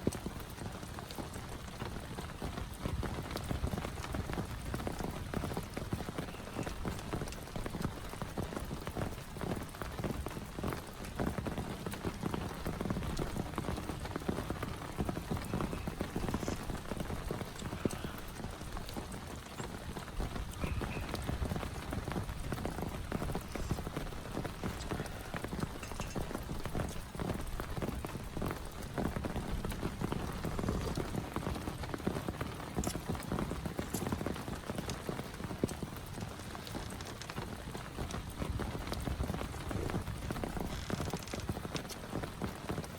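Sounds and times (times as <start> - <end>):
heavy rain falling: 0.0 - 42.9
raindrops hitting a surface: 0.0 - 42.9.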